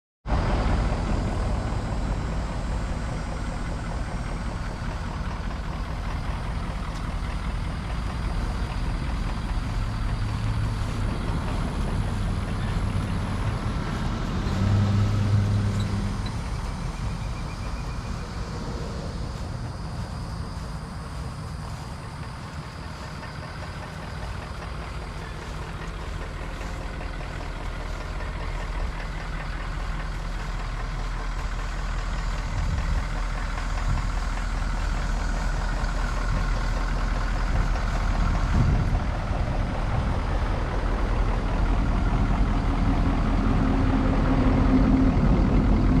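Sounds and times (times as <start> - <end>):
truck engine idling: 0.3 - 46.0
steady high tone: 0.4 - 36.7.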